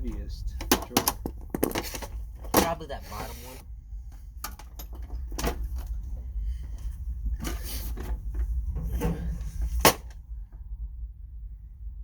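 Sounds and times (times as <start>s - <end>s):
steady low rumble: 0.0s - 12.0s
metal drawers scraping and clanking: 1.7s - 3.6s, 7.4s - 10.0s.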